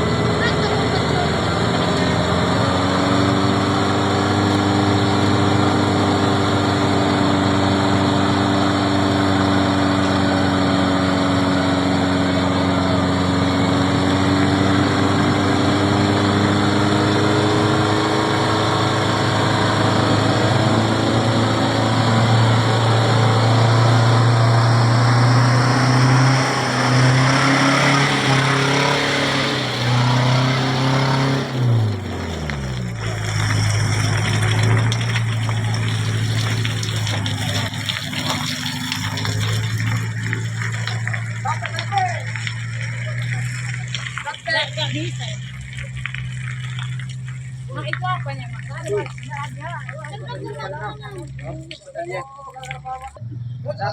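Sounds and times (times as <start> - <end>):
vehicle engine running: 0.0 - 53.9.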